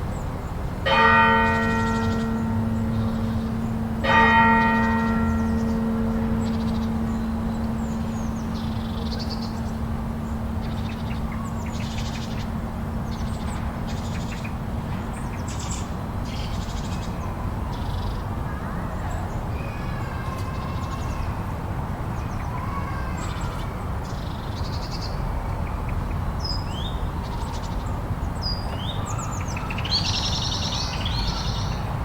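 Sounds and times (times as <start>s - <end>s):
bell ringing: 0.9s - 14.3s.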